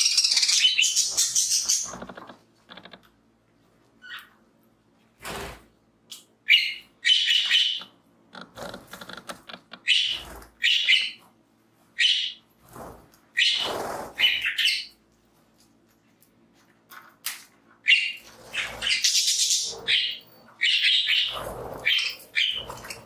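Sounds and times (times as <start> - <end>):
budgies chirping: 0.0 - 2.3, 6.5 - 7.9, 9.8 - 11.3, 12.0 - 12.4, 13.4 - 15.0, 17.8 - 23.0.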